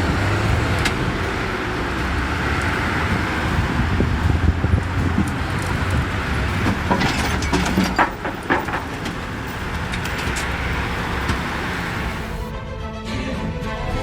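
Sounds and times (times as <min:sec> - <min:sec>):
road vehicle rumble: 0:00.0 - 0:12.5
music: 0:12.4 - 0:14.0.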